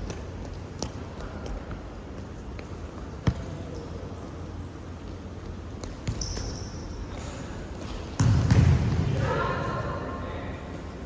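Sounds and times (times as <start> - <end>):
ball kicked and bouncing: 5.8 - 9.2.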